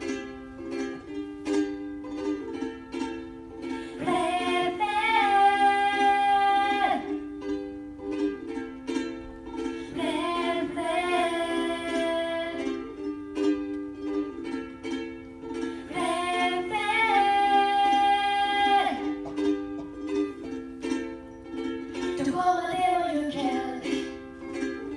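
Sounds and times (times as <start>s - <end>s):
strummed ukulele: 0.0s - 24.9s
woman singing: 3.9s - 7.3s, 9.9s - 13.1s, 15.8s - 19.2s, 22.2s - 24.3s.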